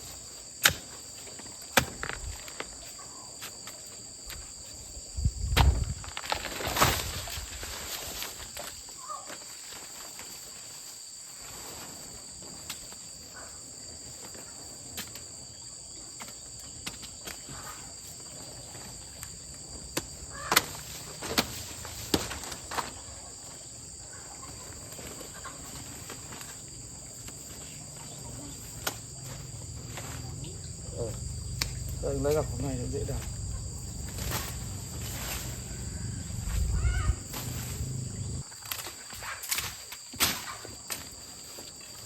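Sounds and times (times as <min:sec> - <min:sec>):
high-pitched insect drone: 0:27.4 - 0:38.5.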